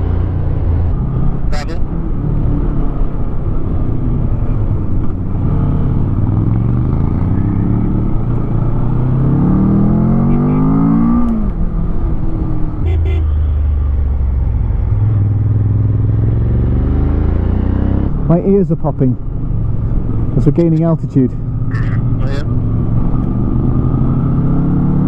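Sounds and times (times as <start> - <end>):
motorcycle engine accelerating: 0.0 - 18.6, 19.2 - 25.0.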